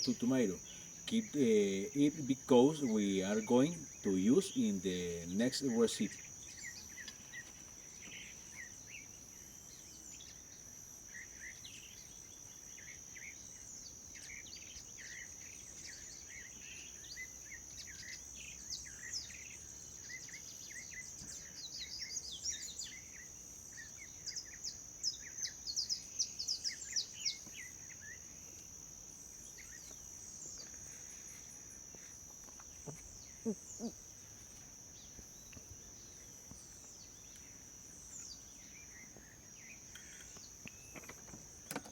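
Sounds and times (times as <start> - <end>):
high-pitched insect drone: 0.0 - 41.9
low bird calls: 31.9 - 34.4.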